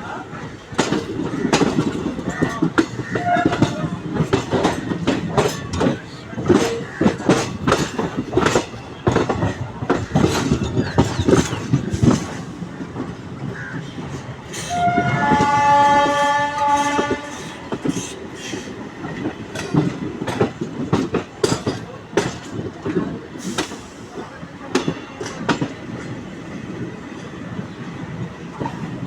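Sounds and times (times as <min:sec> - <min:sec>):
train wheels clattering: 0:00.4 - 0:29.0
train horn chord: 0:14.7 - 0:17.6.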